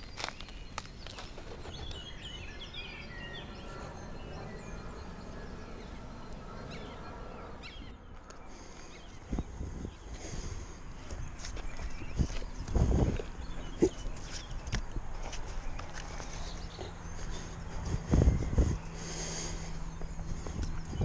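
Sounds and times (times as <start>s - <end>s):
wild birds chirping: 0.0s - 12.6s
steady low rumble: 1.0s - 10.1s.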